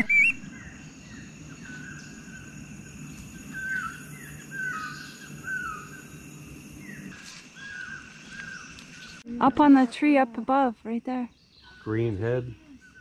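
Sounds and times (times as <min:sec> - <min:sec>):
bird whistled calls: 0:00.0 - 0:02.1
high insect drone: 0:00.0 - 0:13.0.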